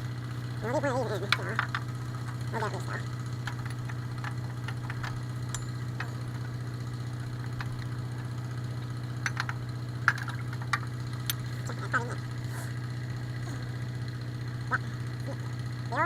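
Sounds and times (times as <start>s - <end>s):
engine idling hum: 0.0s - 16.0s
wrenches clinking on bolts: 3.4s - 6.6s.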